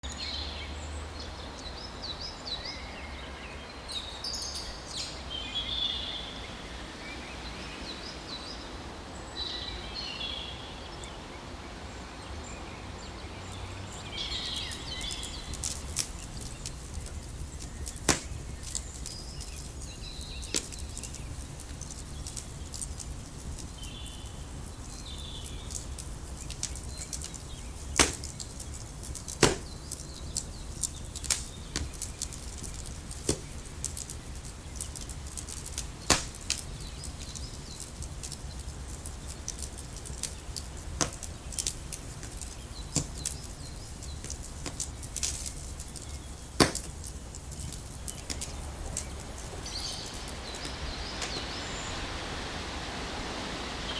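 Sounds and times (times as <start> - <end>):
steady low rumble: 13.9 - 53.9.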